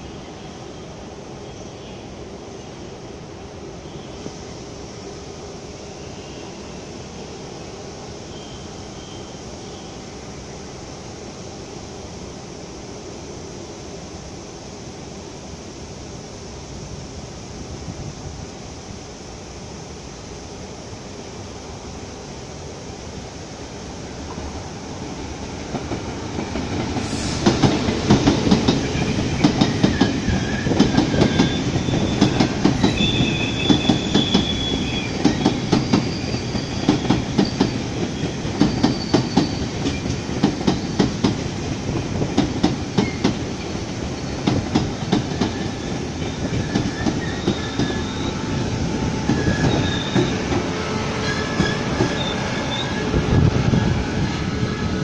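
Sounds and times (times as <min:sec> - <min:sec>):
train rumble: 0:14.2 - 0:55.0
wheels clickety-clack over rail joints: 0:25.6 - 0:48.1, 0:49.2 - 0:53.4
high wheel squeals: 0:28.9 - 0:41.0, 0:45.4 - 0:54.9.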